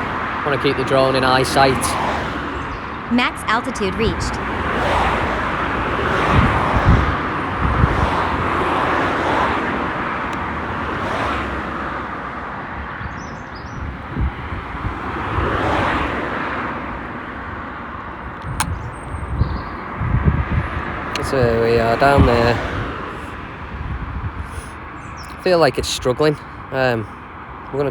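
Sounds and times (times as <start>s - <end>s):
low rumbles: 0.0s - 11.0s
wind buffeting microphone: 0.0s - 26.7s.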